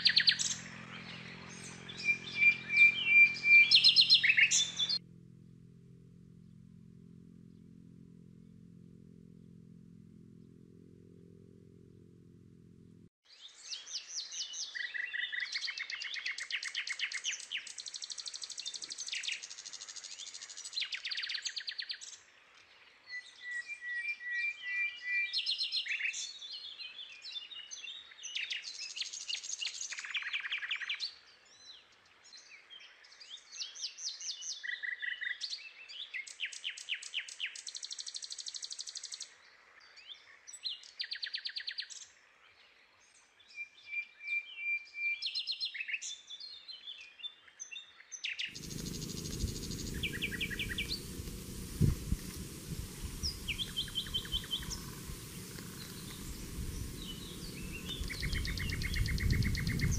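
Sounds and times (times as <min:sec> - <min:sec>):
birds trilling and chirping: 0:00.0 - 0:05.0, 0:48.6 - 0:59.9.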